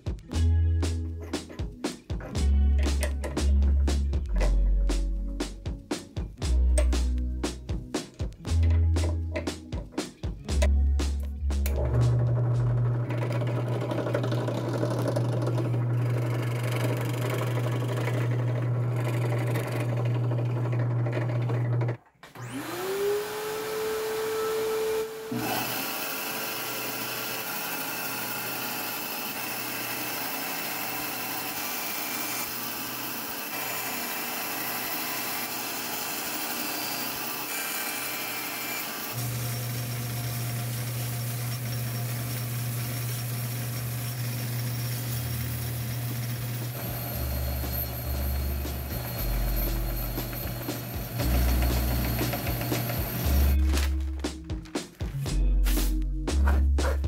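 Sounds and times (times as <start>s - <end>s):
drill press humming: 11.7s - 53.6s
bandsaw motor whine: 11.7s - 54.1s
belt sander humming: 11.7s - 55.0s.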